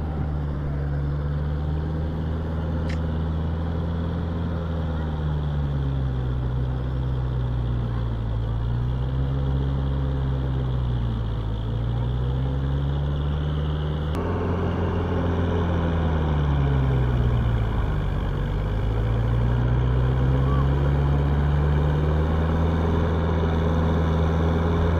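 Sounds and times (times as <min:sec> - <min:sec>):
tractor diesel engine: 0:00.0 - 0:24.9.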